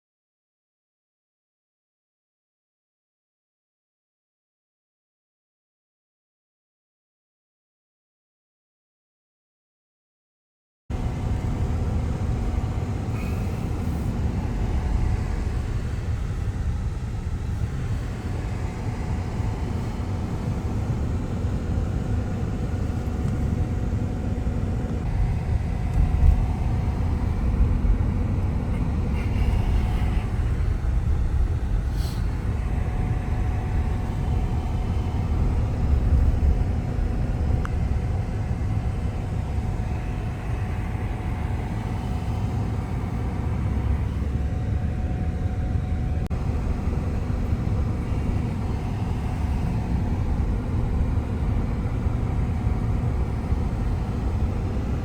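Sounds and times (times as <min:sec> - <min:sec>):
faint steady hum: 0:10.9 - 0:55.0
low rumble: 0:10.9 - 0:55.0.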